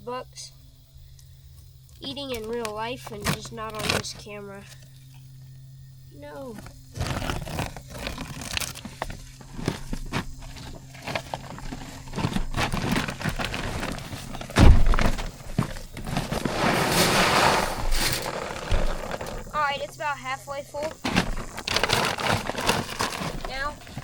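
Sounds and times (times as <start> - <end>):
corn kernels clattering: 6.6 - 20.0, 20.8 - 24.0
loud thump: 14.6 - 15.4
rush of pouring grain: 16.2 - 19.5.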